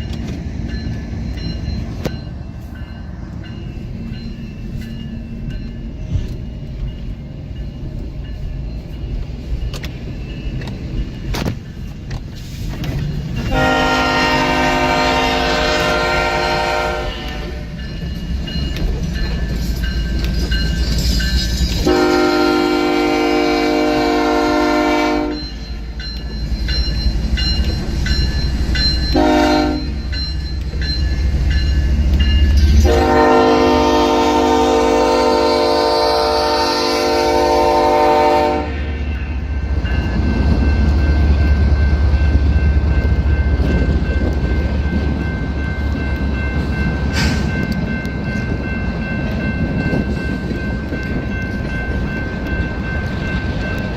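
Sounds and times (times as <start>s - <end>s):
rumble of rolling freight train: 0.0s - 53.9s
locomotive horn blasts: 13.5s - 17.7s, 21.8s - 25.5s, 29.1s - 30.0s, 32.8s - 38.9s.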